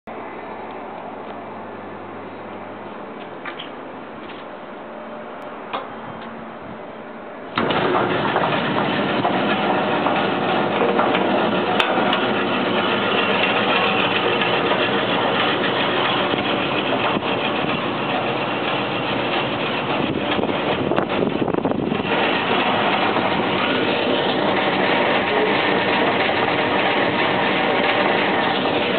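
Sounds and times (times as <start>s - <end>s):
bandsaw whirring: 7.6s - 28.9s.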